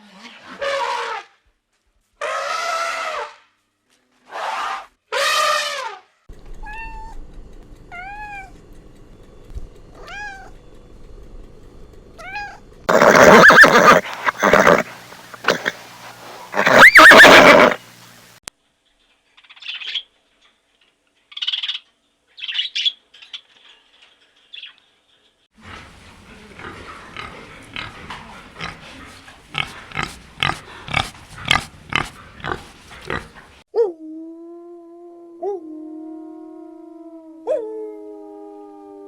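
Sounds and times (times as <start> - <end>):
short repeated animal calls: 12.9 - 17.9
loud animal call: 12.9 - 18.0.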